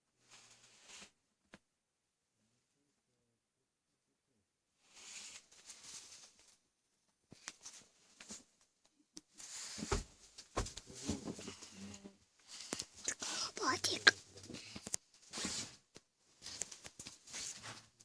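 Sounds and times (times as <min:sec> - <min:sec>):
rustling and scratching: 0:00.2 - 0:01.2, 0:04.8 - 0:06.7, 0:07.3 - 0:08.7, 0:09.3 - 0:18.0.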